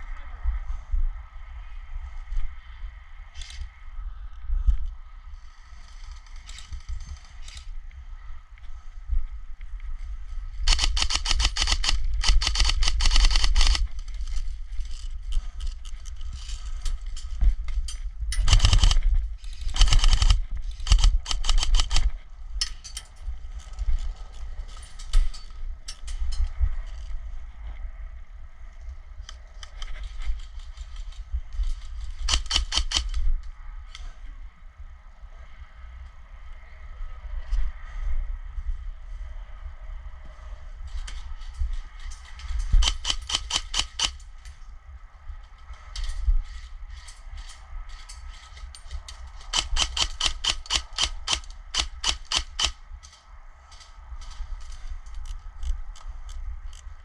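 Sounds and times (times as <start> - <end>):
steady low rumble: 0.0 - 57.0
airsoft guns firing bursts: 42.8 - 44.2, 49.5 - 52.8.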